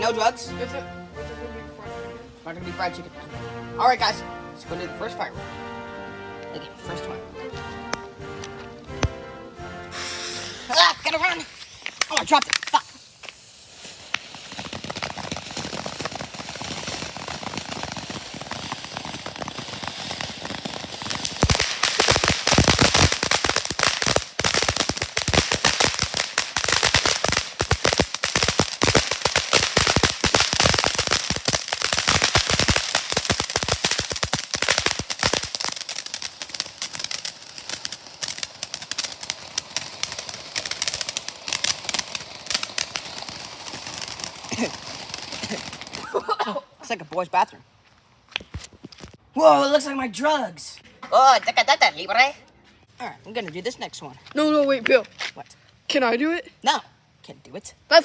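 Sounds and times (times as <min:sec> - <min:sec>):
firework hissing: 0:09.9 - 0:46.2
firework cracks and pops: 0:09.9 - 0:46.3.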